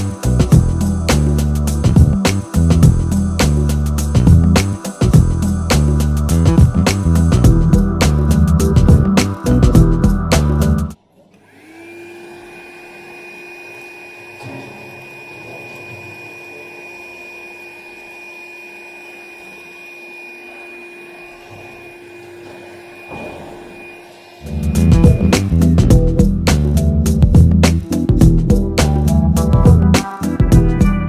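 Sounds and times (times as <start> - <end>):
handheld vacuum cleaner running: 11.4 - 25.3.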